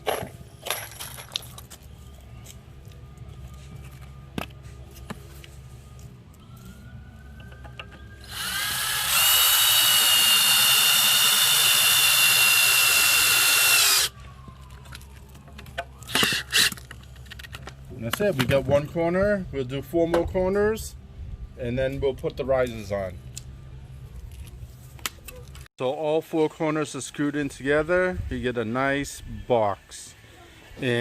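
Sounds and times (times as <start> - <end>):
power drill whining: 8.2 - 14.2.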